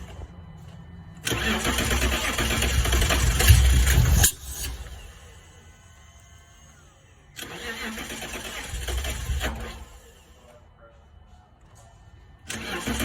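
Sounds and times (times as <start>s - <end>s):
engine starter cranking: 1.2s - 5.4s, 7.4s - 10.2s, 12.5s - 13.0s.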